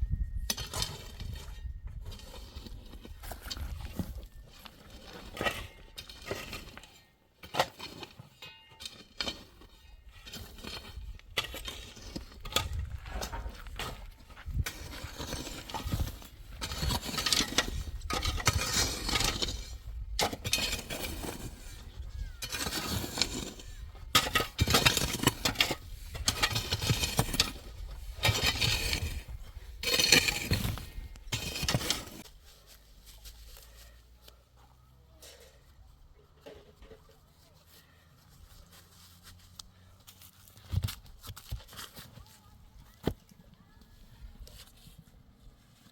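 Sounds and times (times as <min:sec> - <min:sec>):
scraping and crunching on hard material: 0:00.4 - 0:35.8.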